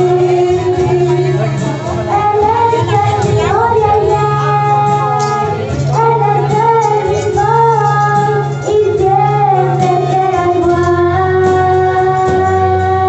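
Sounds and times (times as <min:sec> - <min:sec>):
instrumental accompaniment: 0:00.0 - 0:13.0
person singing: 0:00.0 - 0:13.0.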